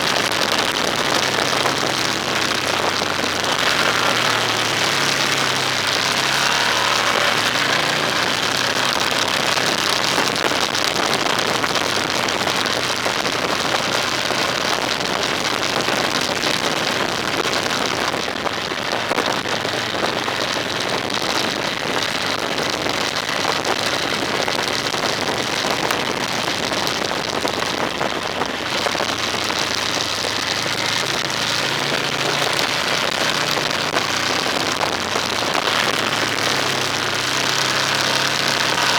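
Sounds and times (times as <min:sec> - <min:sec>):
low engine hum: 0:00.0 - 0:16.2
tyre and wind noise: 0:00.0 - 0:38.9.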